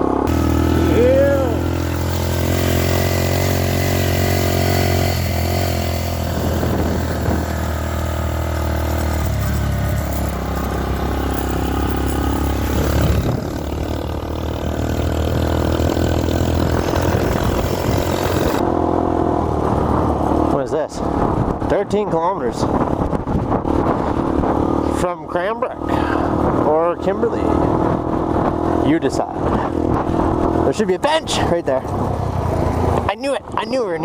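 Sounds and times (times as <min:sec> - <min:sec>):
mini dirt bike engine running: 0:00.0 - 0:18.7.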